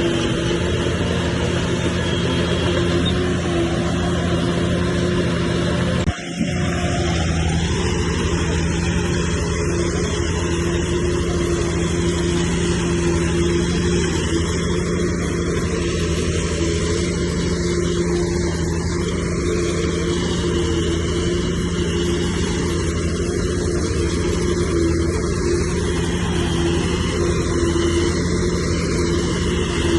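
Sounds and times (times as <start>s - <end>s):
diesel engine running: 0.0s - 29.9s.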